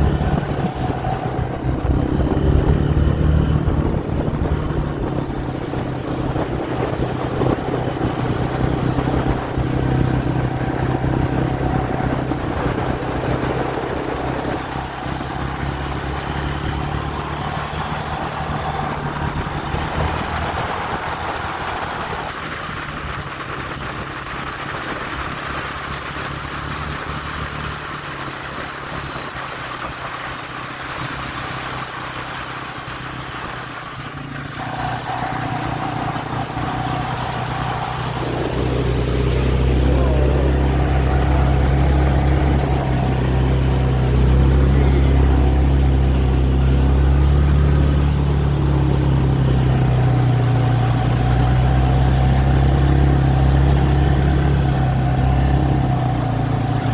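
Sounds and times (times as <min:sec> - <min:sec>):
vehicle engine idling: 0:00.0 - 0:56.9.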